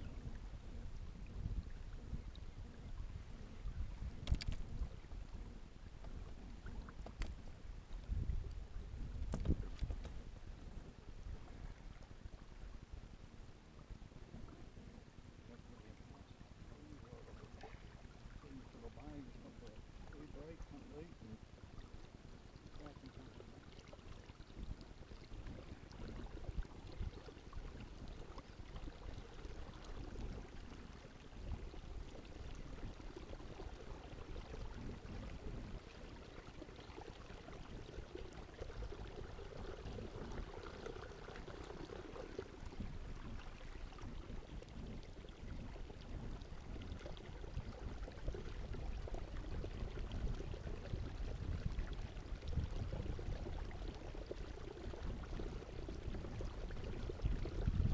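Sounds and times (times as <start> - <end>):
water splashing and trickling: 0.0 - 12.6, 15.5 - 57.9.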